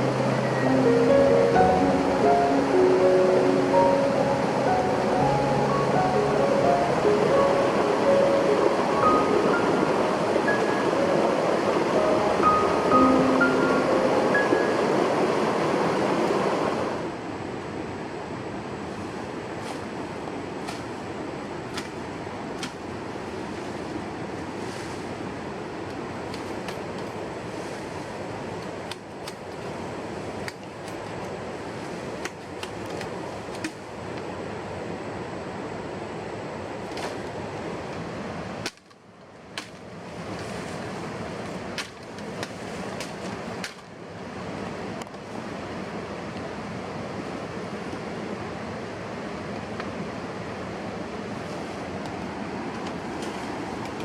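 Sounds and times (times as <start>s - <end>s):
steady rushing noise: 0.0s - 38.8s
sharp cracks and knocks: 38.6s - 39.9s.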